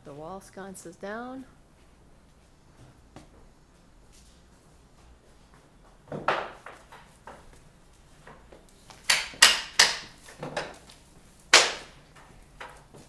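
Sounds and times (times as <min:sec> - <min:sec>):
sharp knocks and clatters: 0:08.3 - 0:10.9.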